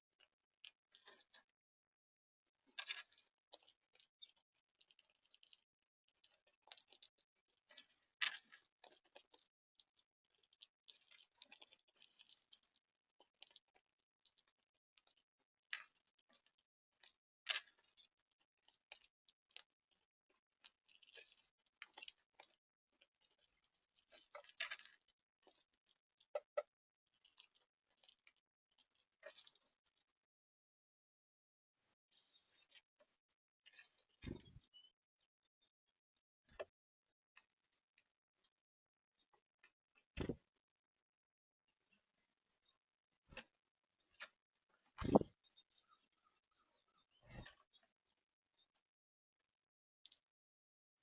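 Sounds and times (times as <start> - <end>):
animals clicking at bird feeder: 2.8 - 29.7.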